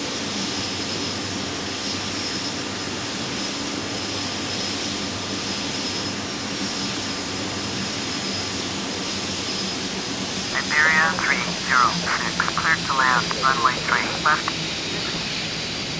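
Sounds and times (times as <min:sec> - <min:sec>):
jet aircraft drone: 0:00.0 - 0:15.9
faint high whine: 0:10.4 - 0:15.6.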